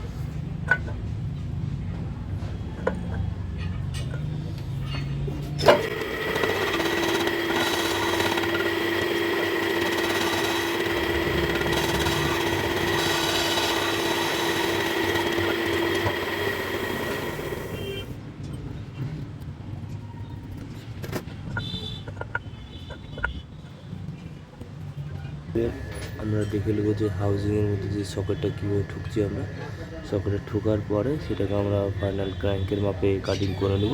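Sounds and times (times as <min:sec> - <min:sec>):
metal lathe cutting with ringing tone: 0:05.6 - 0:18.2.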